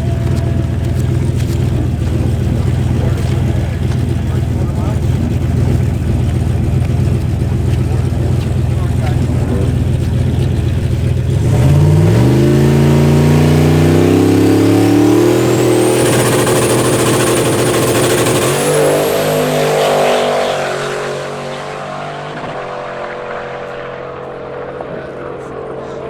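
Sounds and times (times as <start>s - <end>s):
car engine revving hard: 0.0s - 26.0s
turbo whistle: 13.6s - 20.6s.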